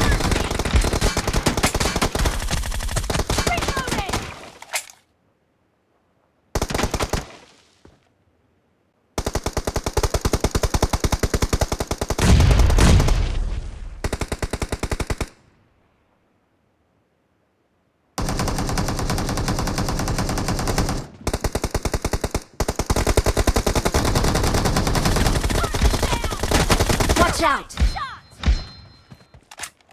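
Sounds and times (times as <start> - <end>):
video game automatic gunfire: 18.2 - 27.4.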